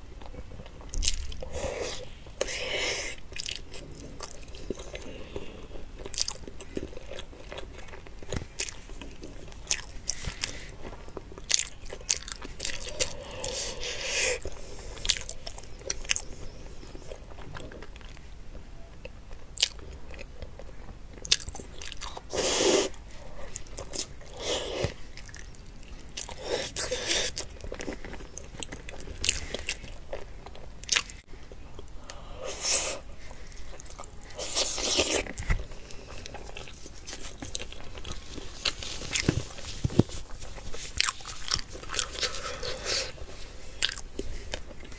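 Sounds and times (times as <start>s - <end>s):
biting and chewing: 0.1s - 44.9s.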